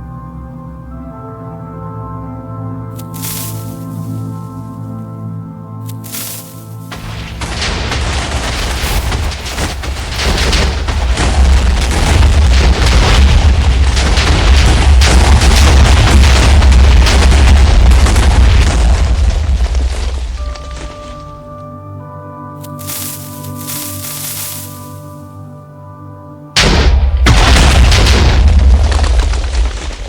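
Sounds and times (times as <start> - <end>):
explosion with deep crackling rumble: 6.9 - 21.6, 26.6 - 30.0.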